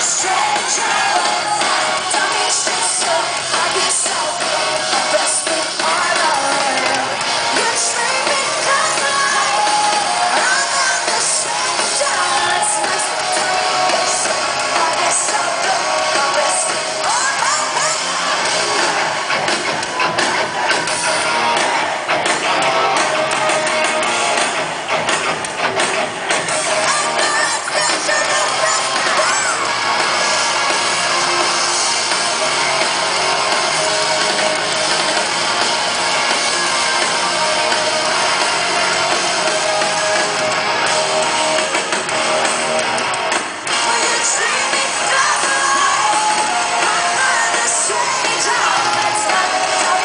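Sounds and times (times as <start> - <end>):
rock band with electric guitars: 0.0 - 50.0
person singing and shouting: 26.8 - 29.7.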